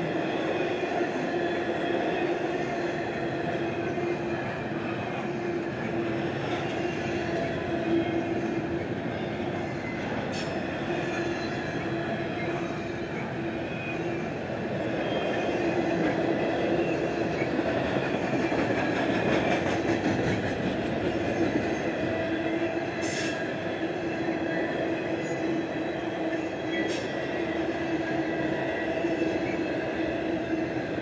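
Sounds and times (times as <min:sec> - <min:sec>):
steel wheels rumbling on rail: 0:00.0 - 0:31.0.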